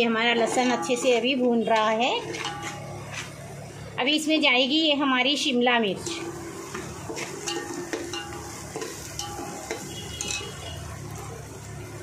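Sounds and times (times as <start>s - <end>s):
utensil clinking and scraping pot: 0.0s - 3.4s, 6.0s - 11.0s
vegetables sizzling in oil: 0.0s - 12.0s.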